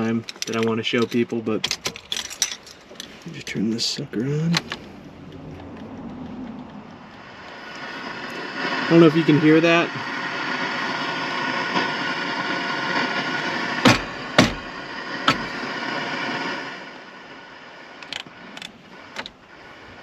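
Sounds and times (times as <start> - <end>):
radio static hiss: 2.9 - 5.3, 6.7 - 20.0
sharp clicks: 4.0 - 8.4.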